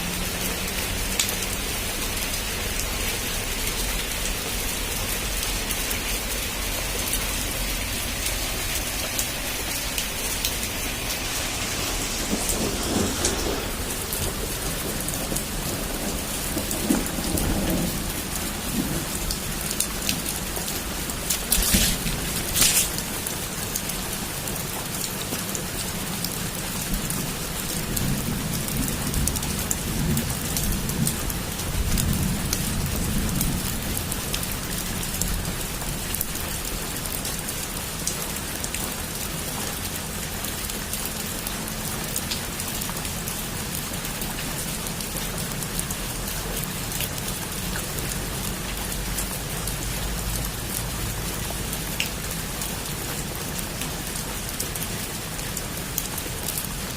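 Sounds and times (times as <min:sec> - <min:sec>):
heavy rain falling: 0:00.0 - 0:56.9
thunder rumbling: 0:07.3 - 0:23.5.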